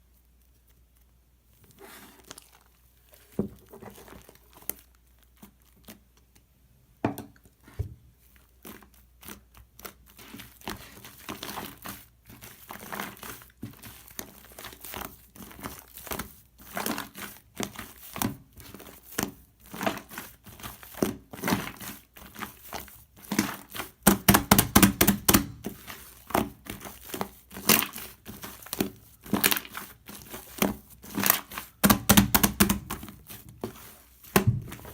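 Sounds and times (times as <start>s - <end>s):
slime crackling and popping: 8.4s - 34.9s.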